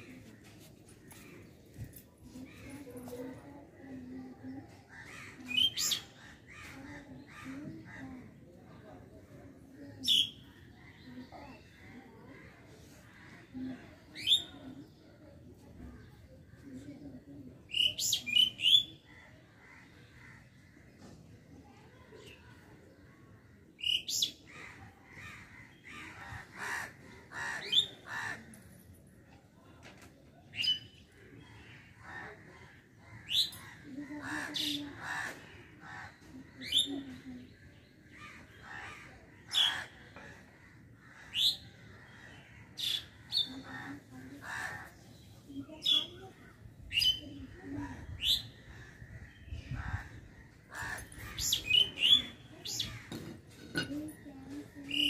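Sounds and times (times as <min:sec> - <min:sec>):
birds making short harsh calls: 0:48.2 - 0:53.9.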